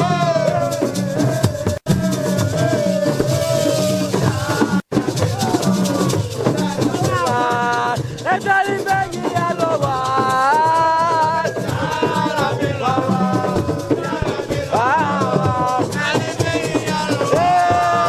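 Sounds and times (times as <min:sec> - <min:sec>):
drums: 0:00.0 - 0:18.0
rattling shaker: 0:00.1 - 0:18.0.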